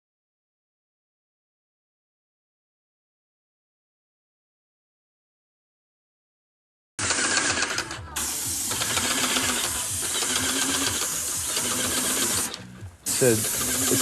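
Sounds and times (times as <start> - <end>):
paint sprayer hissing: 7.0 - 14.0
pump pulsing rapidly: 7.0 - 14.0.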